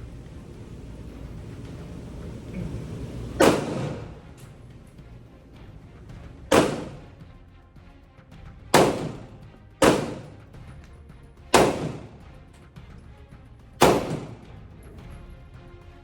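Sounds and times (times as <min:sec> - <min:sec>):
pistol shots with echo: 0:03.4 - 0:04.3, 0:06.5 - 0:07.2, 0:08.7 - 0:10.5, 0:11.5 - 0:12.2, 0:13.8 - 0:14.5.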